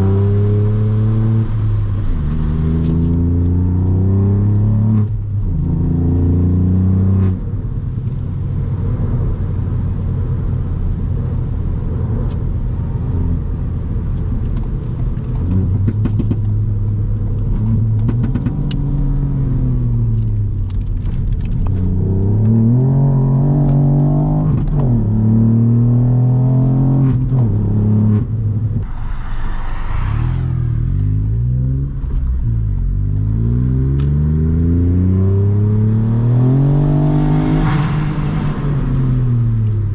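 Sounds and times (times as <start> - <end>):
car engine revving while driving: 0.0 - 28.8, 30.8 - 39.9
brief hissing rush: 28.9 - 31.2.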